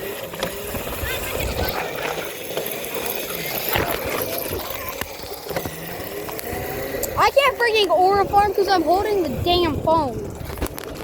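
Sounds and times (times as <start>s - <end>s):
wind on microphone: 8.1s - 11.0s.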